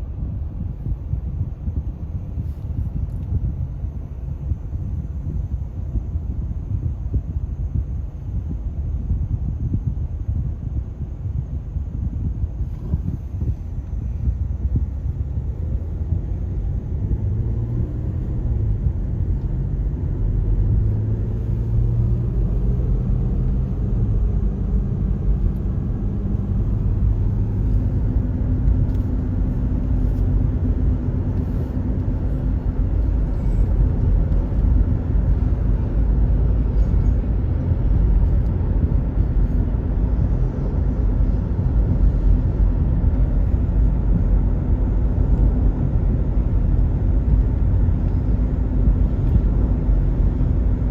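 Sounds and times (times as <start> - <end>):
diesel locomotive engines droning: 13.0 - 50.9.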